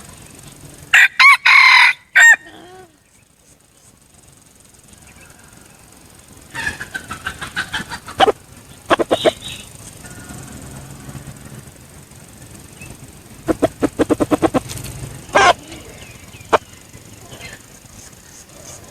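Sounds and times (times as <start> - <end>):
rooster crowing: 0.9 - 3.0, 4.9 - 11.8
rooster clucking: 0.9 - 3.1, 4.9 - 11.6, 13.3 - 18.9.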